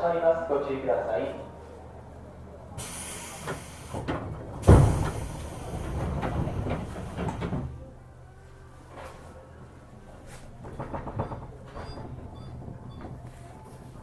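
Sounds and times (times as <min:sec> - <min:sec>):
air hiss of train doors: 0:02.8 - 0:07.4
heavy thud of doors shutting: 0:02.8 - 0:07.8, 0:10.6 - 0:13.5.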